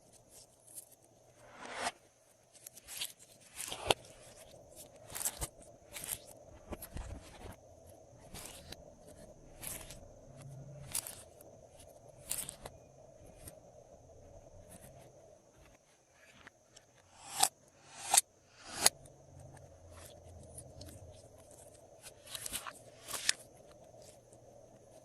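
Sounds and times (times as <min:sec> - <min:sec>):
faint hum: 0:03.8 - 0:25.0.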